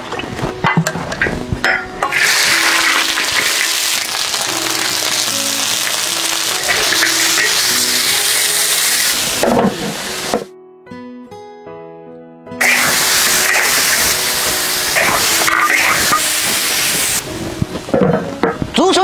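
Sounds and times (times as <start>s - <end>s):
background music: 0.0s - 19.0s
food sizzling in hot oil: 2.1s - 10.5s, 12.6s - 17.4s.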